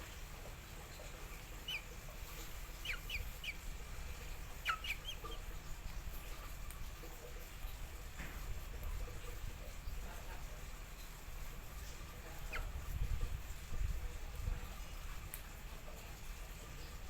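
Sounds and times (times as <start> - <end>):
low steady hum: 0.0 - 17.0
bird chirping: 0.9 - 5.6, 12.2 - 12.8.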